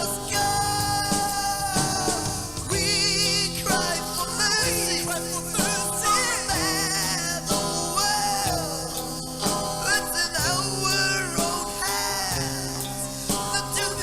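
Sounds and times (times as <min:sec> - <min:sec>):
bending lead guitar line: 0:00.0 - 0:05.1
hard rock band playing: 0:00.0 - 0:14.0.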